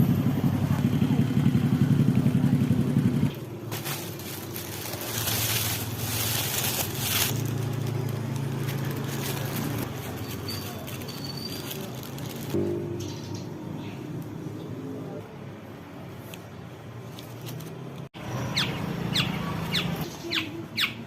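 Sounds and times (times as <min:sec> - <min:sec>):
motorcycle engine running: 0:00.0 - 0:13.7.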